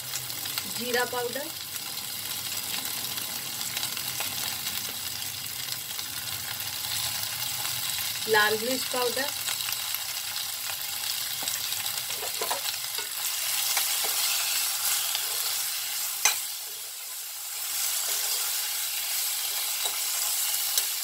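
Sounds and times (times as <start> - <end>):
vegetables sizzling in oil: 0.0 - 21.0
spatula stirring: 12.1 - 21.0.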